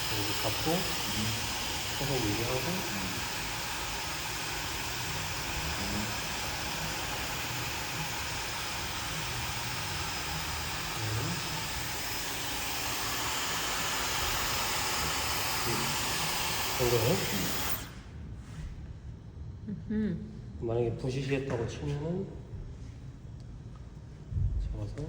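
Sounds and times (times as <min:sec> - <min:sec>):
hair dryer running: 0:00.0 - 0:18.1.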